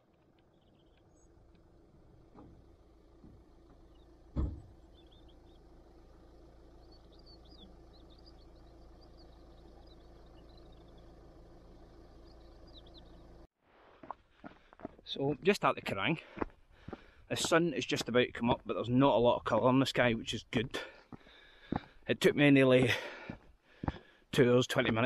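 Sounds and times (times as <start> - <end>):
low steady hum: 0.0 - 13.5
faint birds chirping: 0.0 - 25.0
thump: 4.3 - 4.8.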